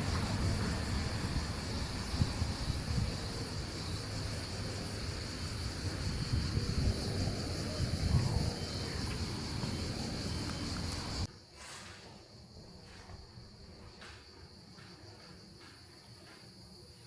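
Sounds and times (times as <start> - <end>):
wind buffeting microphone: 0.0 - 11.3
steady high hiss: 0.0 - 15.0.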